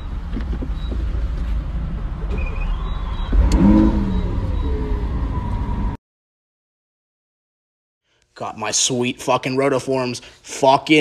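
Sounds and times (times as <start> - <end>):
car engine rumbling and revving: 0.0 - 6.0.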